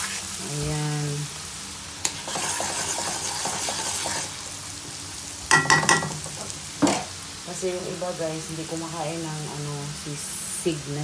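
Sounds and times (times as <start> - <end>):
garlic and onion sizzling in pan: 0.0 - 11.0
spoon stirring and scraping pan: 2.0 - 4.5, 5.5 - 7.1.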